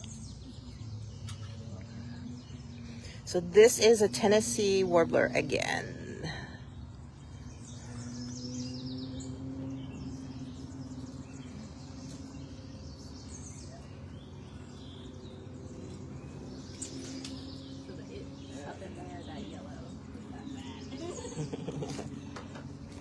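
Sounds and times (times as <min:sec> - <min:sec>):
songbirds singing: 0:00.0 - 0:23.0
steady low hum: 0:00.0 - 0:23.0.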